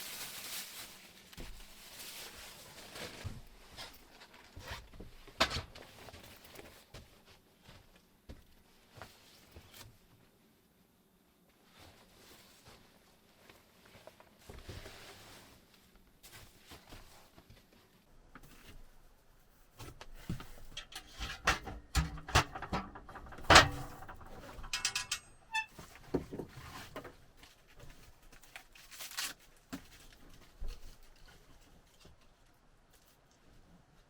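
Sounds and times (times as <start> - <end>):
objects knocking and clattering: 19.8 - 27.2.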